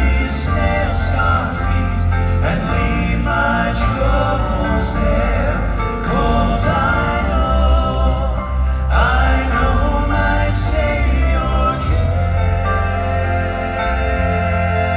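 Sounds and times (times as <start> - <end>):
instrumental accompaniment with bass: 0.0 - 14.9
male vocal quartet singing gospel: 0.0 - 14.9.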